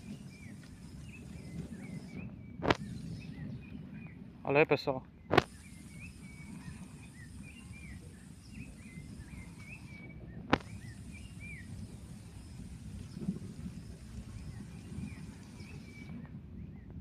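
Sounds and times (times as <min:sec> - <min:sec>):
faint chirping calls: 0:00.0 - 0:04.3, 0:05.1 - 0:16.9
low wind rumble: 0:00.0 - 0:17.0
sharp click: 0:05.3 - 0:05.5.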